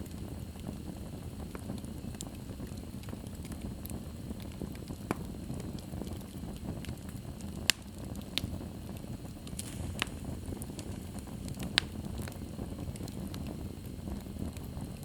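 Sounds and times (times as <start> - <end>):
fire crackling: 0.0 - 15.0
low rush of flames: 0.0 - 15.0.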